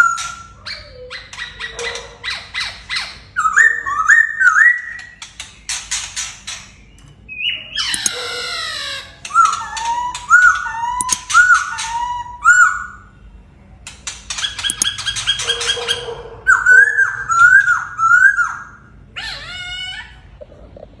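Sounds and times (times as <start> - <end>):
birds singing whistles: 0.0 - 20.1
harsh buzzy bird call: 7.3 - 13.2.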